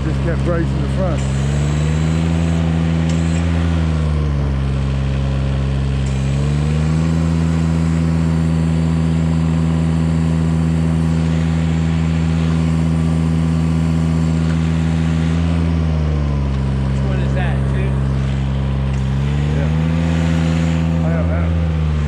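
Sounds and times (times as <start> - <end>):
machine engine running: 0.0 - 22.0.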